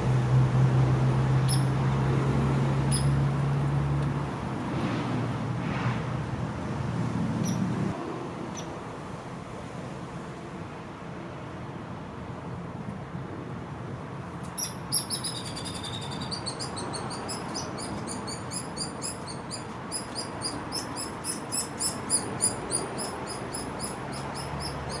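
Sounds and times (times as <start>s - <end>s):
woodpecker fledgling begging chirps: 1.5s - 1.7s, 14.6s - 25.0s.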